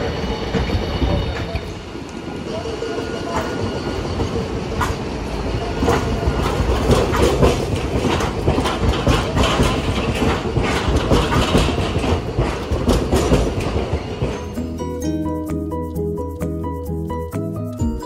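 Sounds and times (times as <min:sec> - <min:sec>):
streetcar rumbling past: 0:00.0 - 0:18.0
steel wheels clacking on rail joints: 0:02.9 - 0:14.9.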